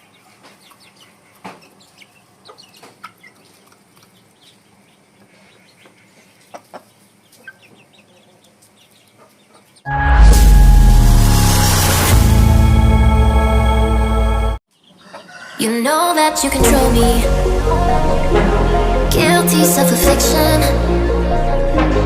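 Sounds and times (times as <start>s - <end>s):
chickens clucking: 0.0s - 9.8s, 14.7s - 16.3s
chicken calls: 0.0s - 9.9s, 14.7s - 16.3s
loud music: 9.9s - 14.6s, 16.2s - 22.0s.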